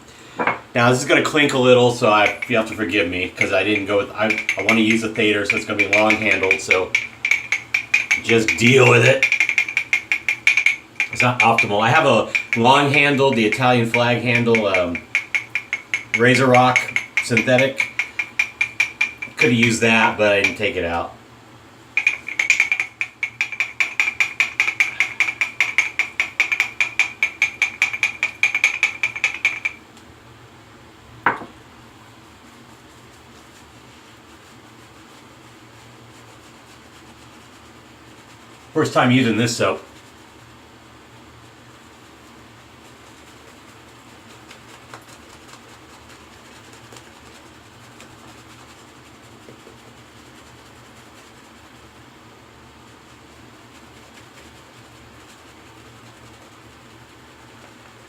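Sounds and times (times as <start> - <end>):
shaving brush whipping lather: 1.0 - 21.0, 22.0 - 29.8, 32.5 - 40.5, 41.4 - 58.0
brush handle clinking on mug: 2.1 - 20.7, 22.0 - 29.8.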